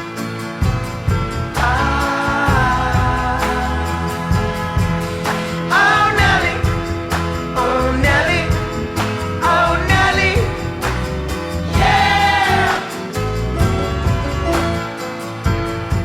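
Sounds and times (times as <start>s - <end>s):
bass: 0.0s - 16.0s
drums: 0.0s - 16.0s
indie song: 0.0s - 16.0s
wordless sung vocals: 1.4s - 13.5s.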